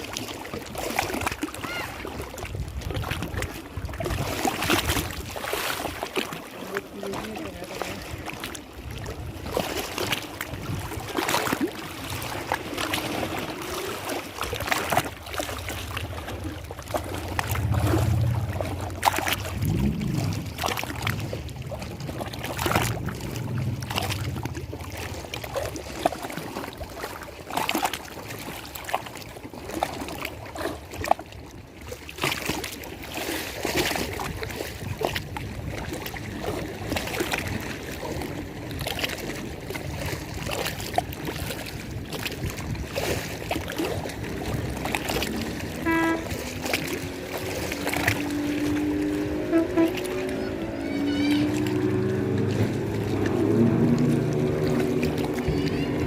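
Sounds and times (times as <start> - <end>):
water splashing and lapping: 0.0 - 56.0
low hum: 16.1 - 25.2.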